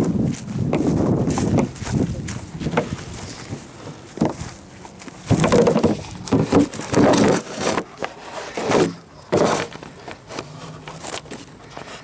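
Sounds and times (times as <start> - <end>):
handling scuffs and knocks: 0.0 - 7.8
footsteps: 0.0 - 11.9.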